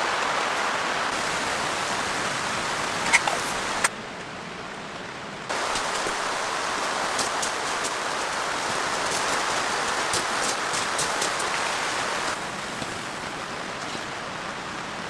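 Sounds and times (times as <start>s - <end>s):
heavy rain hissing: 0.0s - 3.9s, 5.5s - 15.0s
sharp raindrop ticks: 7.0s - 12.0s.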